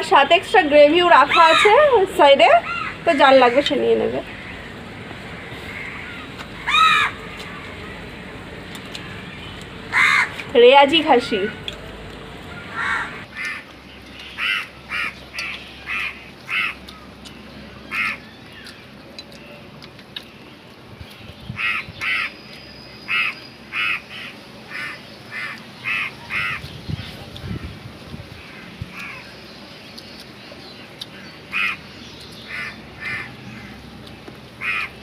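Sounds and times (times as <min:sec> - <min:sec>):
bird giving harsh calls: 0:01.1 - 0:08.2, 0:09.0 - 0:11.7, 0:12.5 - 0:17.1, 0:17.8 - 0:18.3, 0:21.6 - 0:22.4, 0:23.0 - 0:26.8, 0:31.5 - 0:33.8, 0:34.6 - 0:35.0.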